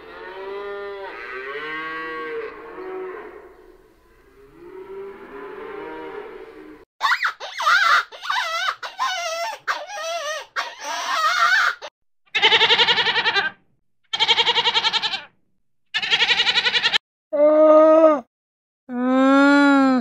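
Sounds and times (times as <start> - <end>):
small animal squealing: 7.0 - 15.3, 16.0 - 17.0
goat bleating: 12.3 - 15.3, 16.0 - 17.0.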